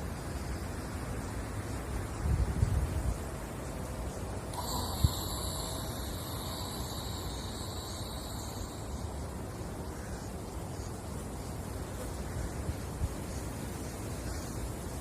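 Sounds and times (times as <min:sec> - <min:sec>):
steady hiss: 0:00.0 - 0:15.0
wind rumbling on microphone: 0:01.2 - 0:15.0
high-pitched buzz: 0:04.5 - 0:09.7.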